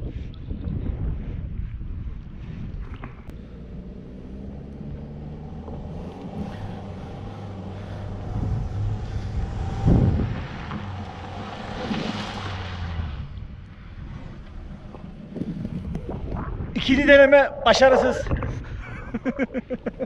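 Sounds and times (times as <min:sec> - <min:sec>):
wheels spinning in mud: 0:03.1 - 0:19.8
vehicle engine revving: 0:03.3 - 0:18.7.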